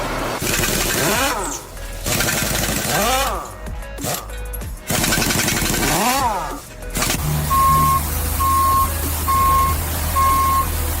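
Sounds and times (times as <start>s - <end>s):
low engine rumble: 0.0s - 11.0s
vehicle reversing alarm beeping: 7.2s - 11.0s.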